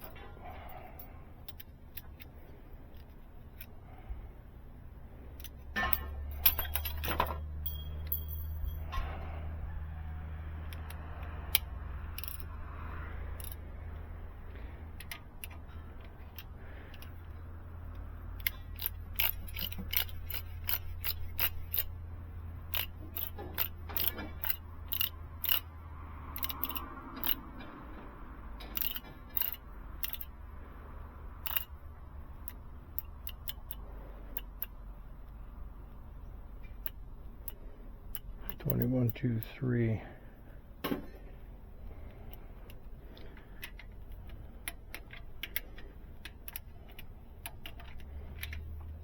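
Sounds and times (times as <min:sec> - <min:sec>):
low steady hum: 0:00.0 - 0:49.0
hand ratchet clicking: 0:05.4 - 0:08.6, 0:10.6 - 0:14.0, 0:14.9 - 0:30.4, 0:31.3 - 0:34.8, 0:36.5 - 0:39.5, 0:41.8 - 0:49.0.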